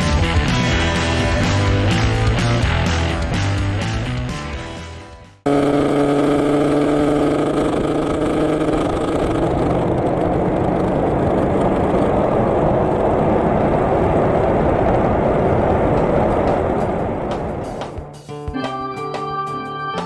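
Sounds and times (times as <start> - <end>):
motorcycle engine cruising: 5.5 - 18.2
wind and road noise: 5.5 - 18.2.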